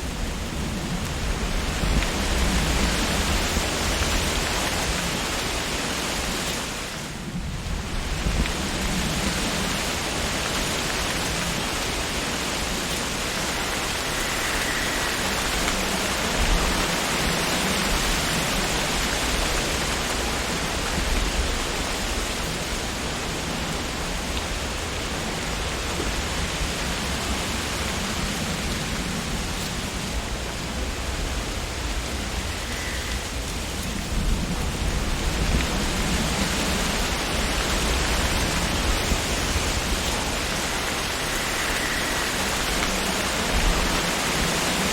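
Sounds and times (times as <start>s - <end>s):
wind rustling tree leaves: 0.0s - 44.9s.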